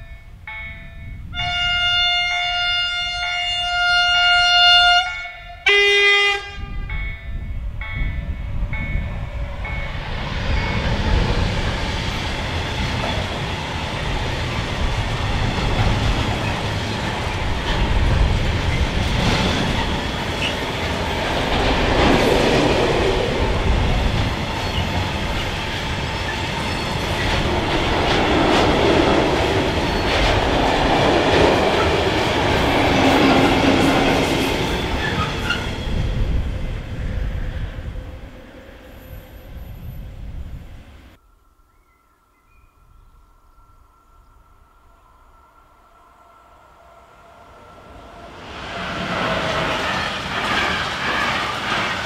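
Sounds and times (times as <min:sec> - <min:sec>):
freight train wheels rumbling: 0:06.3 - 0:41.2, 0:47.3 - 0:52.0.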